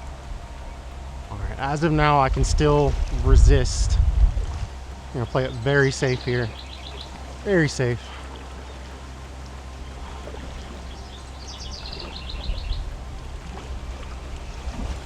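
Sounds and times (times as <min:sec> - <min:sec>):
low rushing outdoor background: 0:00.0 - 0:15.0
bird singing high notes: 0:10.6 - 0:13.0.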